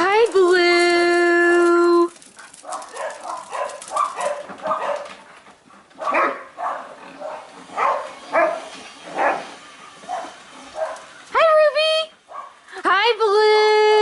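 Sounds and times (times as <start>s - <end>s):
dogs barking: 2.4s - 5.3s, 5.9s - 11.2s, 12.2s - 12.6s.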